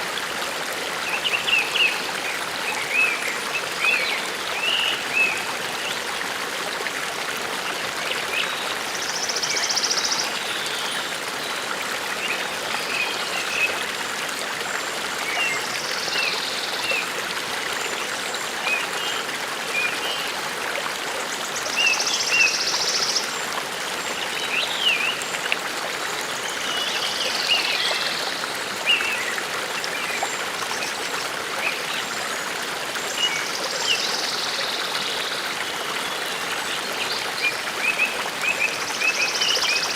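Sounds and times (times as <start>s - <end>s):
forest brook running: 0.0s - 39.9s.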